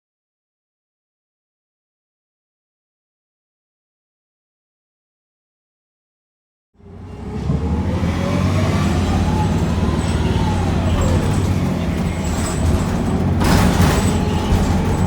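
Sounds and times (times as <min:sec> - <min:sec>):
bus engine rumbling: 0:06.8 - 0:15.0.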